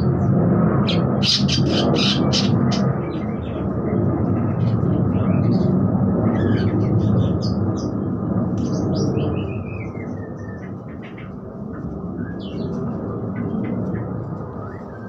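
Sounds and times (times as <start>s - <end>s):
low rumbling noise: 0.0s - 15.0s
parakeets chirping: 0.8s - 3.6s.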